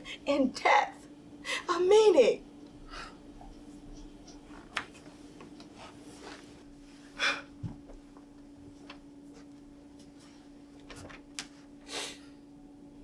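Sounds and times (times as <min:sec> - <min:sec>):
sharp breath or sniff: 0:11.9 - 0:12.3.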